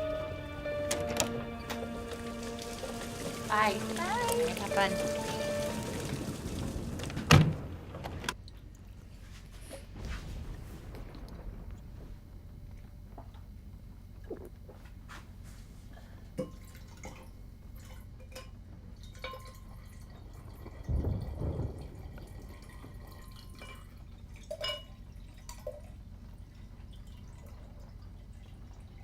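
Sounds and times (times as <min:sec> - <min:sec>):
water dripping: 0:00.0 - 0:07.3, 0:08.3 - 0:09.8, 0:16.4 - 0:29.0.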